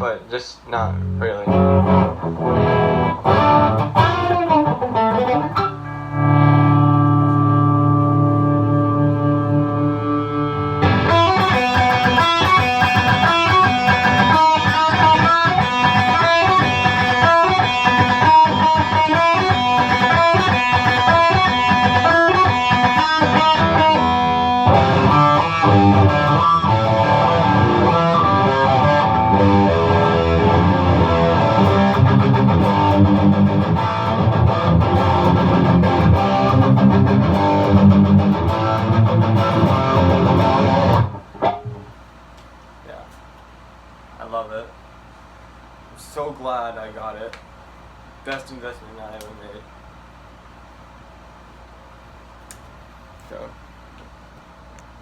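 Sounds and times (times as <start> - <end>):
electric guitar playing: 1.0 - 42.0.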